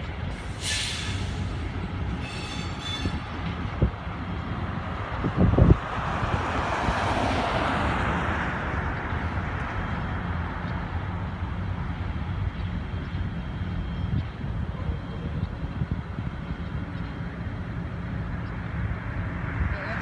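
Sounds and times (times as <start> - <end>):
freight train rumbling past: 0.0 - 20.0
train hiss: 0.3 - 3.6.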